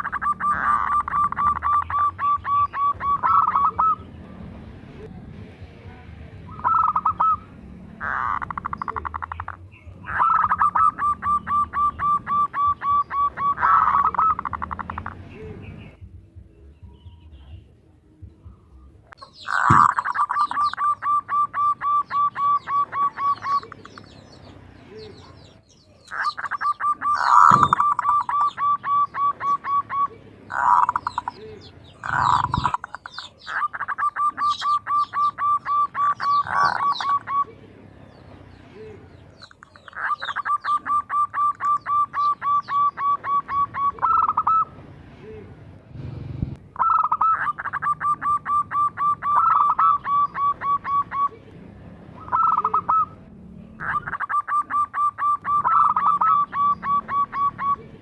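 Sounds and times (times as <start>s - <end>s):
dove rapid staccato call: 0.0s - 4.1s, 6.5s - 16.0s, 19.2s - 37.5s, 39.2s - 44.7s, 46.8s - 51.3s, 53.8s - 57.8s
small birds chirping: 0.0s - 5.8s, 6.4s - 45.9s, 46.6s - 58.0s.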